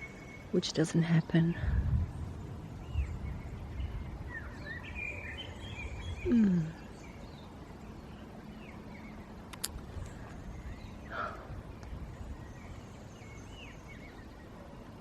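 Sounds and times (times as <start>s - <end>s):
birds chirping faintly: 0.0s - 15.0s
low rumble: 1.2s - 4.8s
single click: 9.5s - 9.8s.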